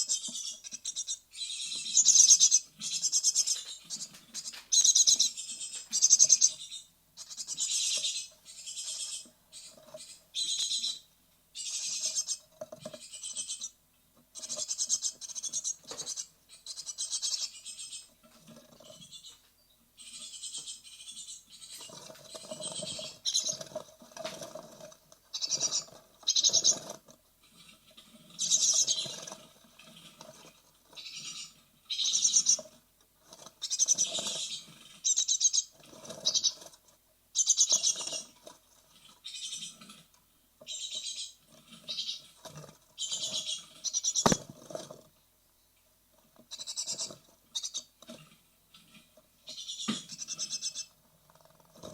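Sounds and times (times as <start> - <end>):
nestlings rasping begging calls: 0.0 - 18.1, 20.0 - 23.8, 25.3 - 27.0, 28.3 - 30.1, 31.0 - 32.6, 33.6 - 36.7, 37.4 - 38.4, 39.2 - 39.8, 40.7 - 42.4, 43.0 - 44.4, 46.5 - 47.9, 49.5 - 50.9.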